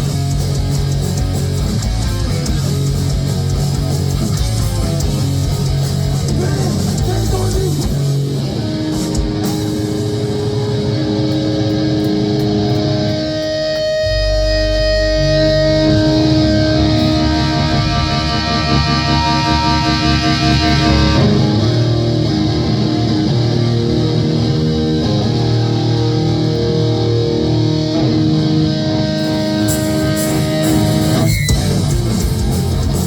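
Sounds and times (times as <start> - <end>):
heavy metal band playing: 0.0 - 33.0
held guitar notes: 0.0 - 33.0
low sustained bass note: 14.0 - 23.6.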